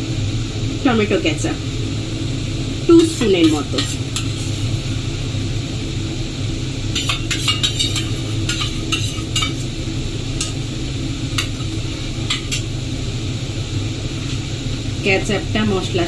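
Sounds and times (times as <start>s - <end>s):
paste sizzling in a pan: 2.5s - 5.6s, 6.3s - 14.8s
spoon scraping and knocking a pan: 3.0s - 4.7s, 7.0s - 9.7s, 10.4s - 10.7s, 11.4s - 12.7s.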